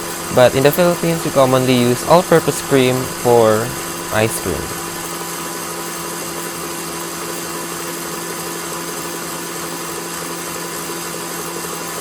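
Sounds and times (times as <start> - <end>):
stand mixer motor humming: 0.9 - 4.1.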